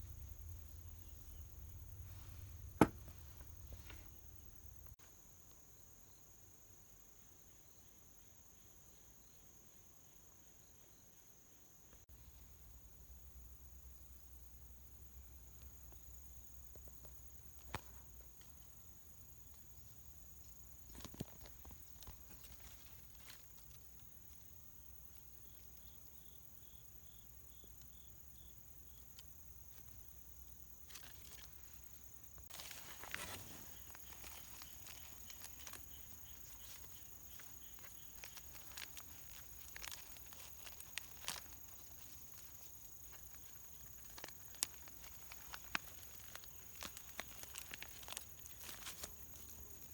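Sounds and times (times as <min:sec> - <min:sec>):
faint rustles and clicks: 0:00.0 - 0:05.0, 0:16.7 - 0:26.4, 0:27.6 - 0:49.9.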